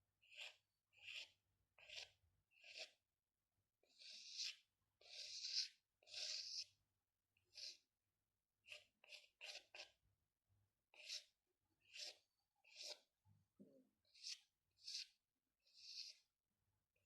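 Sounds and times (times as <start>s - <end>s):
drawing strokes on paper: 0.2s - 3.0s, 3.8s - 6.8s, 7.4s - 7.9s, 8.6s - 10.0s, 10.9s - 13.2s, 14.0s - 16.3s.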